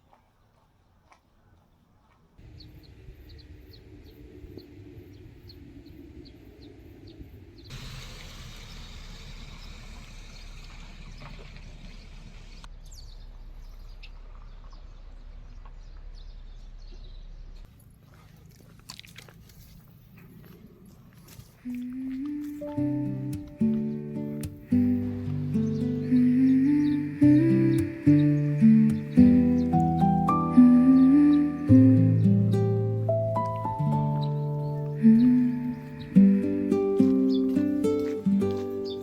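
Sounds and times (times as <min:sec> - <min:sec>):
steady rushing noise: 0:02.4 - 0:09.9
low hum: 0:02.4 - 0:18.0, 0:19.6 - 0:39.0
high chirp of bird or insect: 0:22.6 - 0:32.6, 0:33.8 - 0:39.0.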